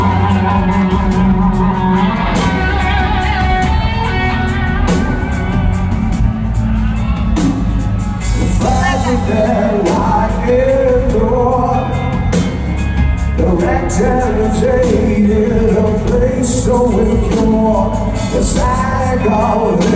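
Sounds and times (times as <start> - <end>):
drums with cymbal hits: 0.0 - 19.9
electric guitars: 0.0 - 19.9
live rock band: 0.0 - 19.9
person singing: 8.3 - 12.6, 13.3 - 19.9.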